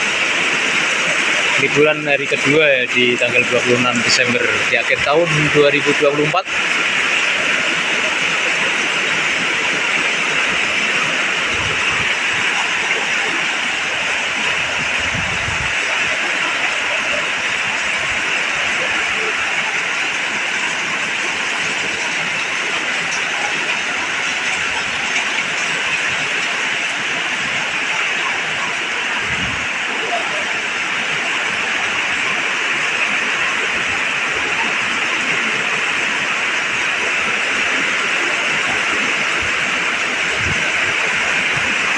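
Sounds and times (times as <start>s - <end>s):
heavy rain pouring: 0.0s - 41.9s
strong wind: 0.0s - 41.9s
wind rumble on microphone: 8.7s - 16.7s, 28.6s - 30.0s, 38.6s - 41.9s.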